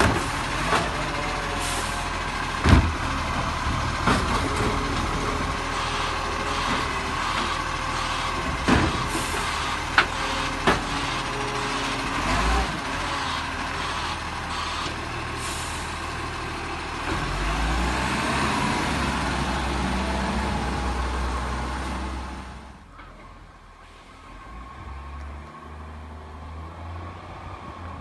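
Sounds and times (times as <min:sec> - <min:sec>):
garbage truck engine running: 0:00.0 - 0:24.5.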